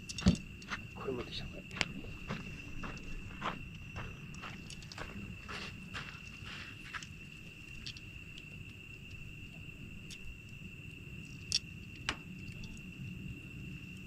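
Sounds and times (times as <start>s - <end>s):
insects trilling: 0.0s - 14.0s
campfire wood popping: 2.8s - 13.3s.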